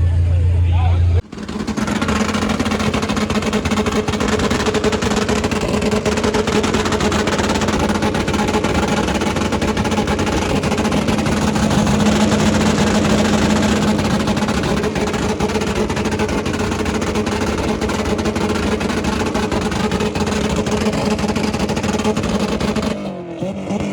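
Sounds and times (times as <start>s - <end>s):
rapid exhaust crackle: 0.1s - 23.9s
car engine at high revs: 1.2s - 23.9s.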